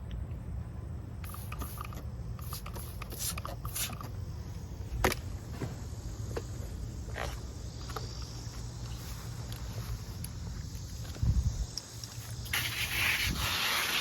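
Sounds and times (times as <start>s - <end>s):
wind rumble on microphone: 10.2s - 11.8s.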